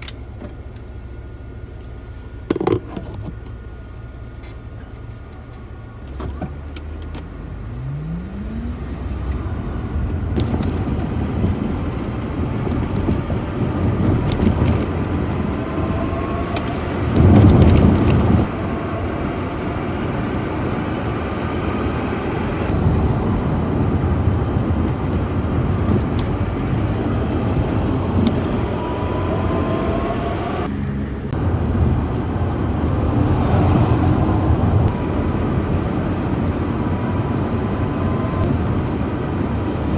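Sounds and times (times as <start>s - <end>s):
road and body rumble: 0.0s - 39.9s
electric motor whine: 15.1s - 38.9s.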